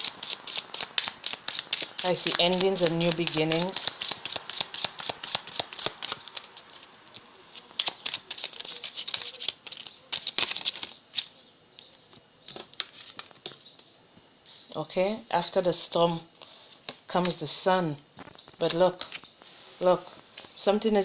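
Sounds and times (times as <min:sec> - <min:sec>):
cards being shuffled: 0:00.0 - 0:11.4, 0:12.1 - 0:13.9, 0:18.2 - 0:19.4.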